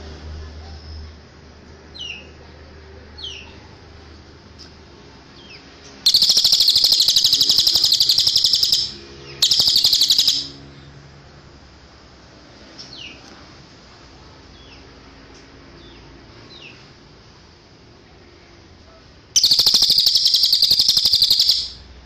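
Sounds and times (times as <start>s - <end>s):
bird high-pitched trill: 6.0s - 10.6s, 19.4s - 21.9s.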